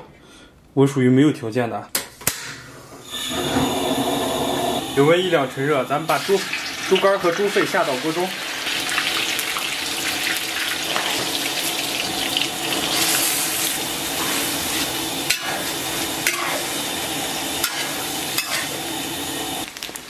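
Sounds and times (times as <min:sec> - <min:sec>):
meat sizzling in hot oil: 0:03.0 - 0:20.0
spatula scraping wok: 0:10.3 - 0:19.6.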